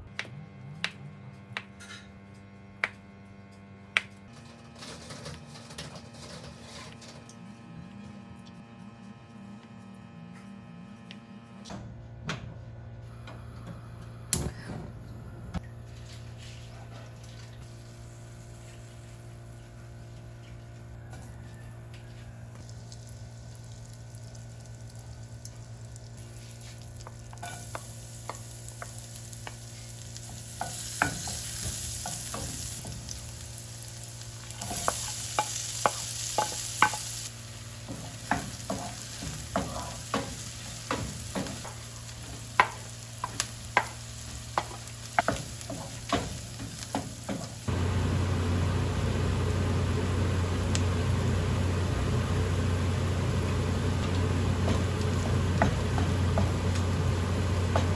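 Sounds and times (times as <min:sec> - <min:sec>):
steady low hum: 0:07.4 - 0:20.9, 0:47.6 - 0:57.9
food sizzling in a pan: 0:22.2 - 0:57.9.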